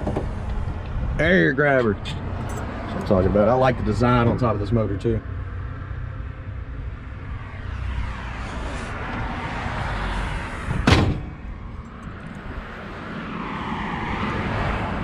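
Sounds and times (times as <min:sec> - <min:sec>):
car hood slamming shut: 0:10.7 - 0:11.5.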